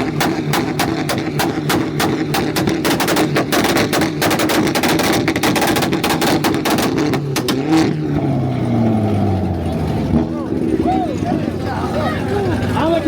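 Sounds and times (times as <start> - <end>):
exhaust pops and bangs: 0.0 - 8.2
car engine on rev limiter: 0.0 - 13.0.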